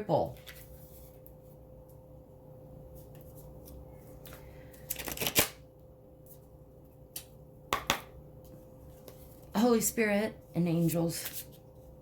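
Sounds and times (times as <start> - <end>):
cards being shuffled: 3.0 - 5.6, 10.8 - 11.6.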